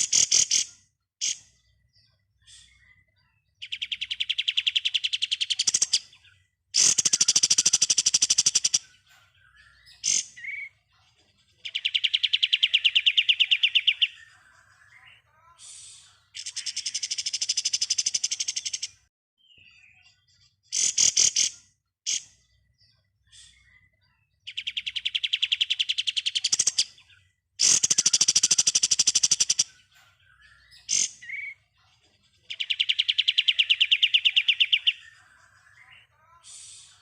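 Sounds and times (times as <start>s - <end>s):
songbird trilling: 6.8s - 10.8s, 11.6s - 15.1s, 32.5s - 36.1s.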